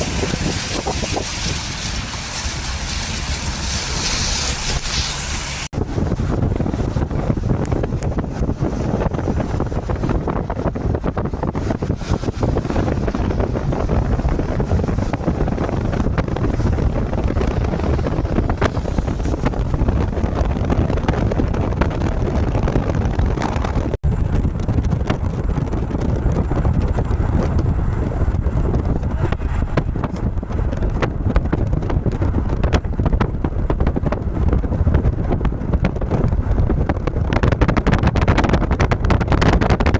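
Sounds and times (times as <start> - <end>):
vehicles on wet road: 0.0 - 10.6, 11.6 - 20.5
wind buffeting microphone: 0.0 - 39.9.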